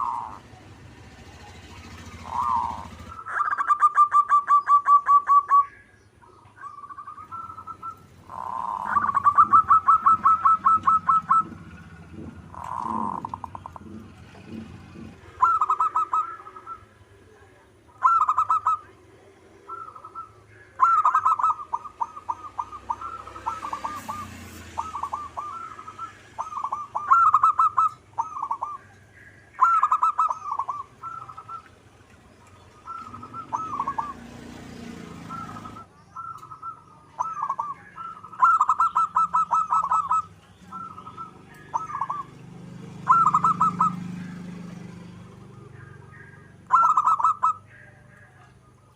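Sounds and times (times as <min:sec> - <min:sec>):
dove cooing: 0:00.0 - 0:48.9.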